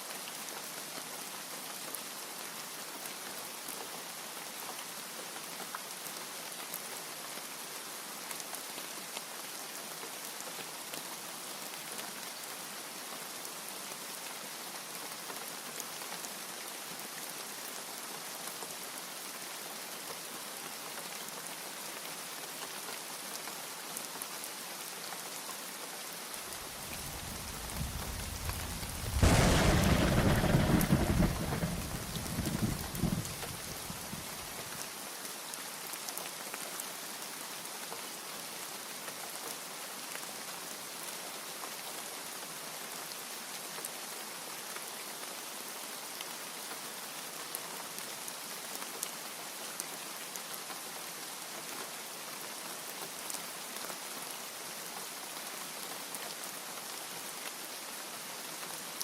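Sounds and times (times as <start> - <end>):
heavy rain: 0.0 - 59.0
thunder rumble and clap: 26.8 - 34.3.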